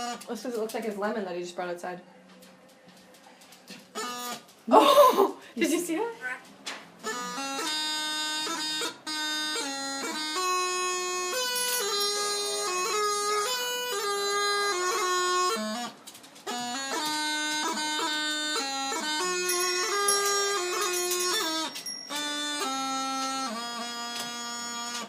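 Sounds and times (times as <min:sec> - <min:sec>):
bagpipe melody: 0:00.0 - 0:00.3, 0:03.9 - 0:04.5, 0:07.0 - 0:25.0.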